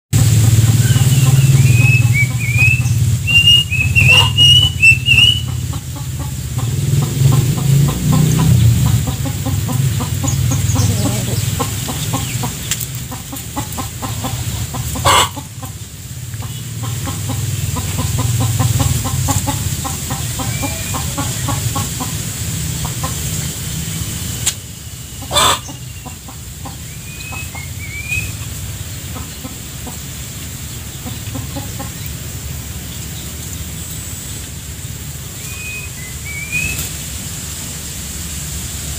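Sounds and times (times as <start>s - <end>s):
chickens clucking: 0.2s - 35.6s
high chirping calls: 0.5s - 22.2s, 24.4s - 30.0s, 35.2s - 37.0s.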